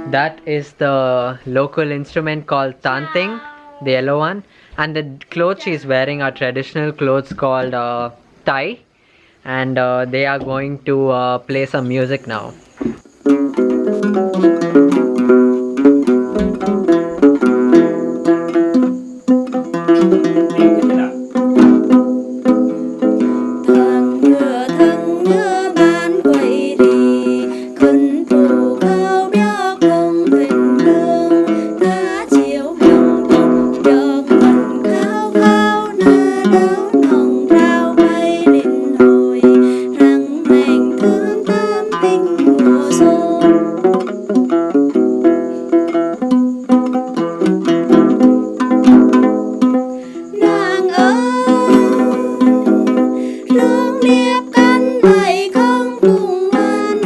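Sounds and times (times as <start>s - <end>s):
plucked lute folk tune: 0.0s - 0.6s, 11.5s - 57.0s.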